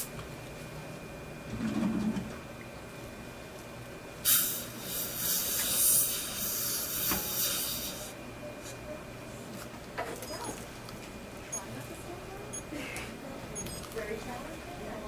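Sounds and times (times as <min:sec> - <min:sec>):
air-water syringe hissing: 0:04.3 - 0:08.1.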